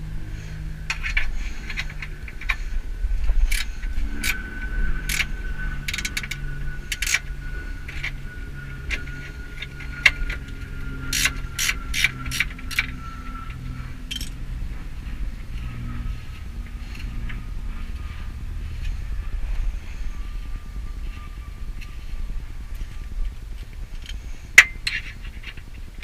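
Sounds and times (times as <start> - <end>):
low steady hum: 0.0 - 26.0
ratchet wrench clicking: 3.5 - 4.4, 5.0 - 7.2, 8.9 - 12.9, 14.1 - 14.4.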